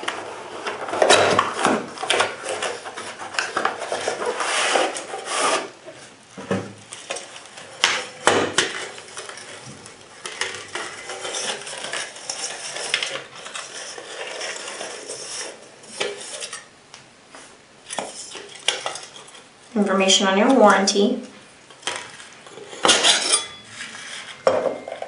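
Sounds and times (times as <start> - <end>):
rustling: 0.0 - 16.7.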